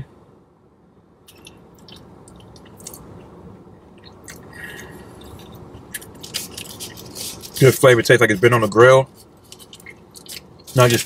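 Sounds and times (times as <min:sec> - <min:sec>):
soft mouth clicks: 0:01.3 - 0:03.0
person chewing food: 0:01.3 - 0:07.6, 0:09.3 - 0:10.8.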